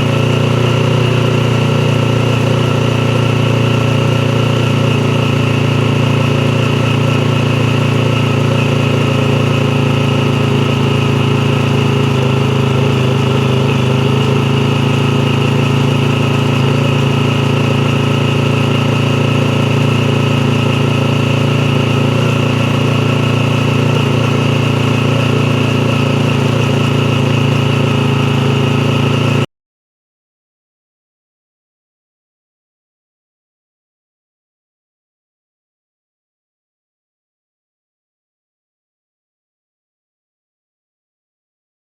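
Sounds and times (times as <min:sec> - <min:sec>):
motorcycle engine idling: 0:00.0 - 0:29.5.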